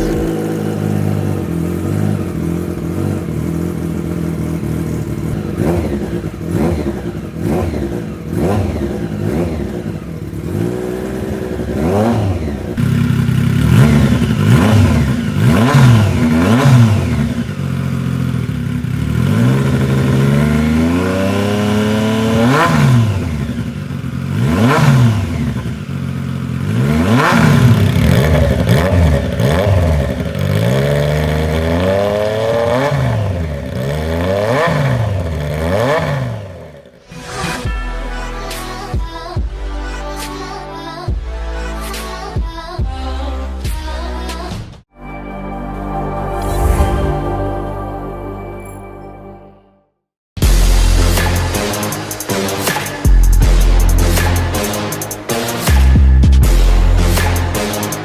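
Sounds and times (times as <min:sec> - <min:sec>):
motorcycle engine idling: 0:00.0 - 0:22.4, 0:23.0 - 0:27.0.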